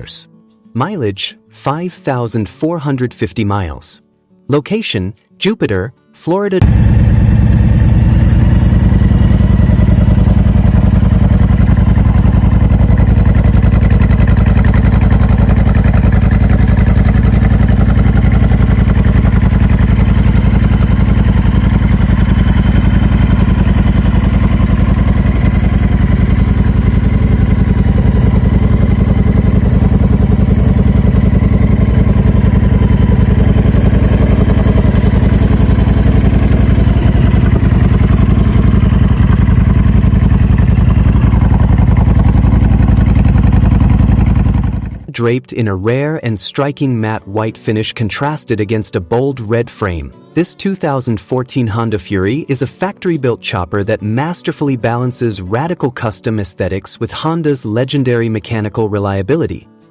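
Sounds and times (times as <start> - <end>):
motorcycle engine idling: 6.6 - 45.1.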